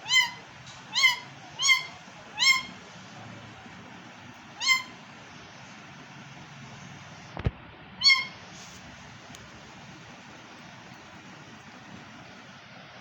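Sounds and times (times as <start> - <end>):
parrot squawking: 0.0 - 2.8, 4.5 - 5.0, 8.0 - 8.4.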